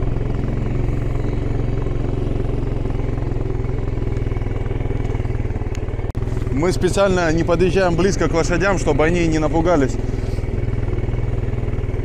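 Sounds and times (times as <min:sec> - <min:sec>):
small petrol engine running: 0:00.0 - 0:12.0.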